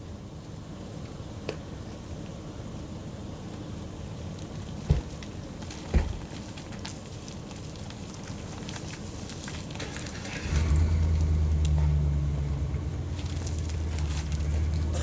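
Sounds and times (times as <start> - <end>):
tyres crackling over gravel: 3.4 - 15.0
truck engine droning: 9.8 - 15.0.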